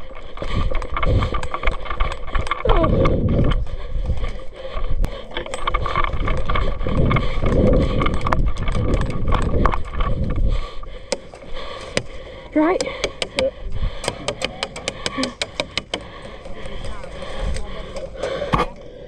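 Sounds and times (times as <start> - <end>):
sharp clicks: 5.0 - 18.8.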